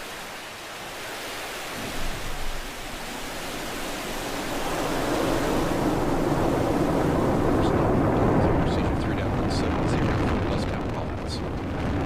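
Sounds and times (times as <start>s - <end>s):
rocket engines roaring: 3.5s - 12.0s.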